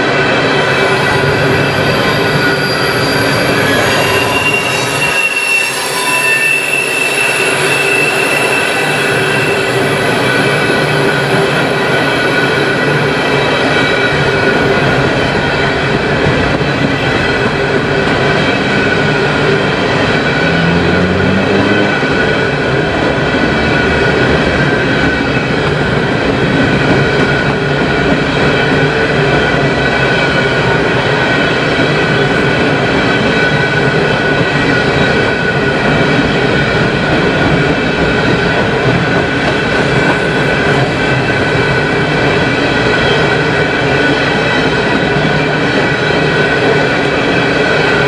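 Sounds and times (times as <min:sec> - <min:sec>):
freight train wheels on rails: 0:00.0 - 0:48.0
wheels squealing: 0:00.7 - 0:25.9.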